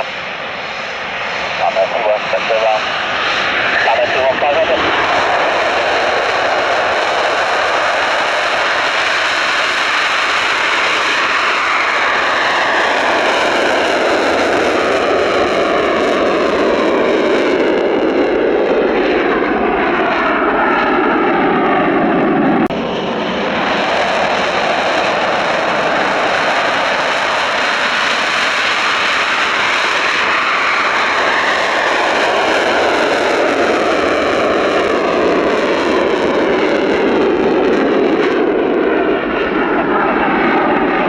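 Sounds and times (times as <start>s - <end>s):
jet engine roar with whine: 0.0s - 41.0s.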